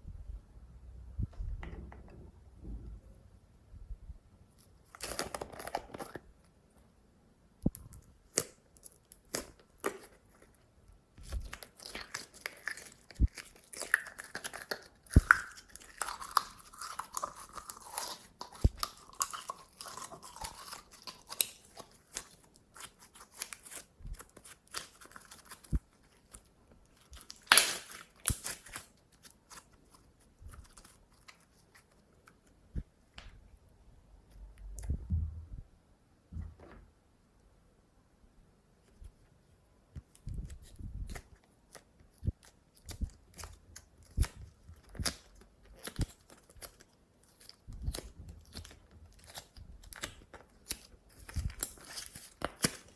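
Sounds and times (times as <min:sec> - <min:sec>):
slime squished by hand: 0:27.0 - 0:32.0.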